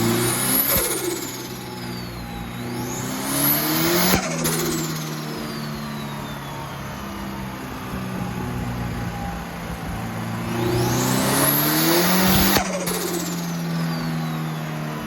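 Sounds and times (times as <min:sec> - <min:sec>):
turbo flutter: 0:00.0 - 0:06.6, 0:10.7 - 0:14.3
car engine revving: 0:00.0 - 0:15.0
turbo whistle: 0:00.0 - 0:15.0.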